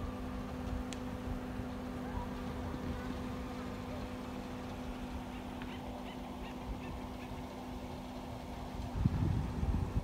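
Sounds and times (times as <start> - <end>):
steady hum: 0.0 - 10.0
bird calls: 3.0 - 8.2.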